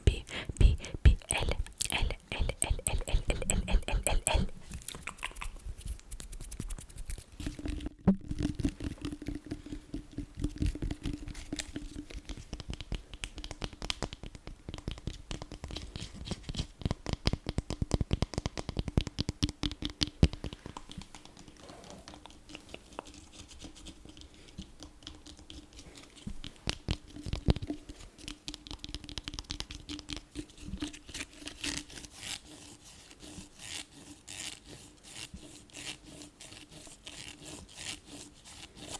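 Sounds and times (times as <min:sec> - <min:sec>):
scratching on objects: 0:00.0 - 0:14.0
faint steady hum: 0:00.0 - 0:15.3.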